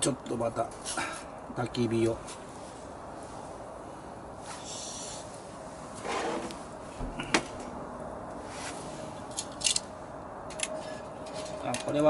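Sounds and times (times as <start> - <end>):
rustle: 0.6 - 7.7, 8.3 - 12.0
sharp knock: 7.0 - 8.0.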